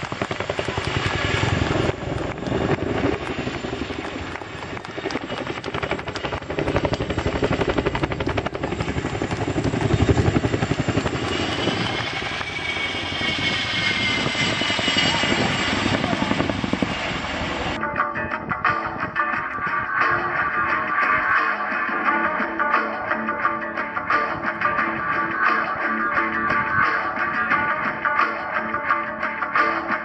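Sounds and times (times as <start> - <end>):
helicopter rotors chopping: 0.0 - 17.8
high whine: 0.9 - 28.6.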